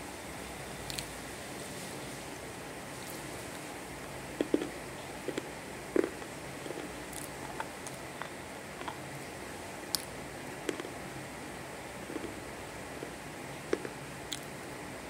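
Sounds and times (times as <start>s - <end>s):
person chewing crunchy food: 4.3s - 11.0s, 12.0s - 14.5s.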